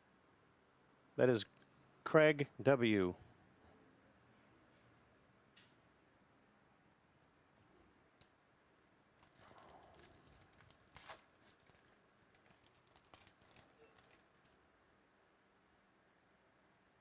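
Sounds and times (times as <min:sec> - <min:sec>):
wrapper crinkling and tearing: 0:09.1 - 0:14.6.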